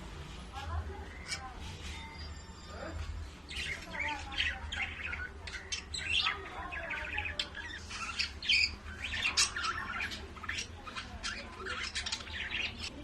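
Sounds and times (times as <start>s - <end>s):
birds chirping and squawking: 0.8s - 13.0s.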